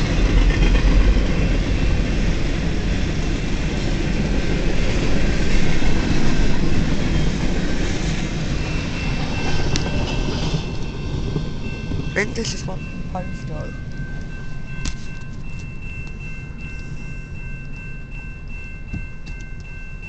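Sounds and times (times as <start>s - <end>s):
freight train rolling past: 0.0s - 20.0s.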